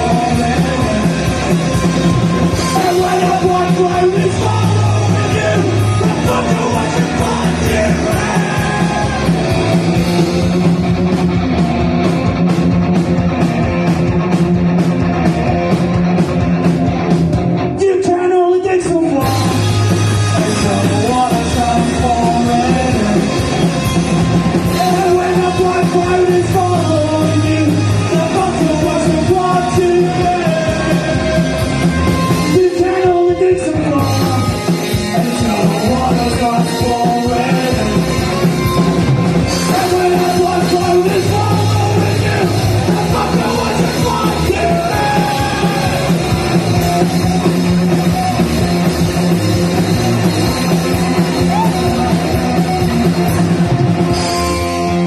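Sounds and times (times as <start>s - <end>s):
person singing: 0.0s - 9.8s, 20.4s - 23.6s, 24.6s - 38.7s, 39.5s - 46.6s
rock band playing live: 0.0s - 55.0s.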